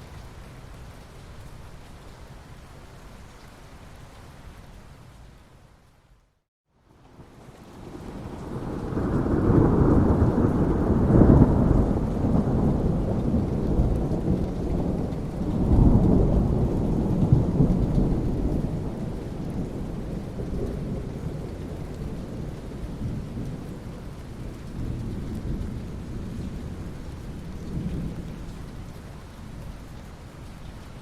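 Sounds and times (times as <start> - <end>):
rain hissing: 7.1 - 31.0
thunder rumbling: 7.8 - 29.8.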